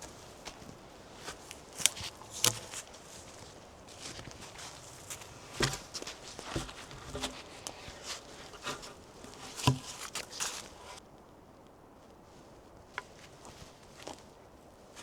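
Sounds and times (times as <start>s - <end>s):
footsteps crunching in snow: 0.0s - 11.0s.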